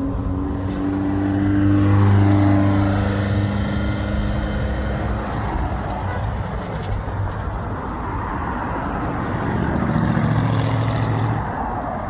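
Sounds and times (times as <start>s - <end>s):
car engine passing by: 0.0s - 5.9s.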